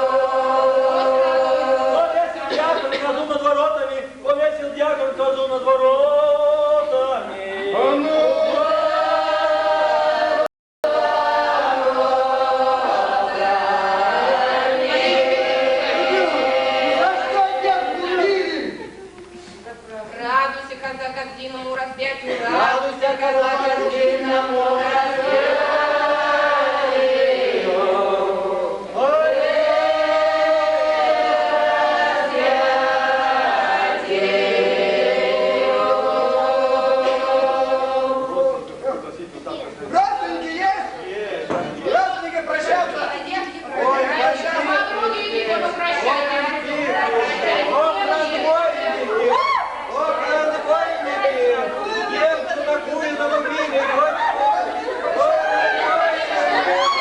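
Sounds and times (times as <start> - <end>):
voices singing slow chant: 0.0 - 3.0, 5.7 - 19.3, 22.3 - 38.8.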